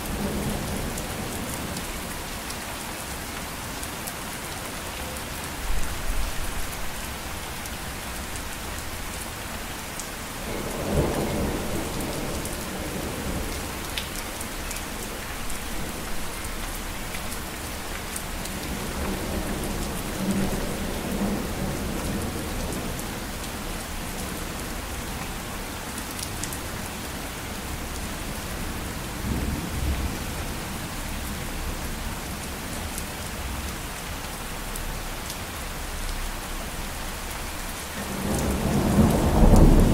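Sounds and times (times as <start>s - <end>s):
steady rain falling: 0.0s - 39.9s
thunder rumbling: 38.1s - 39.9s.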